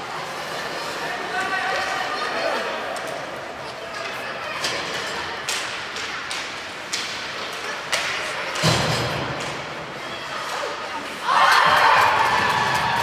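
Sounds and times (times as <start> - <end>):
murmur of spectators: 0.0 - 13.0
hockey sticks and puck clacking: 4.0 - 9.7.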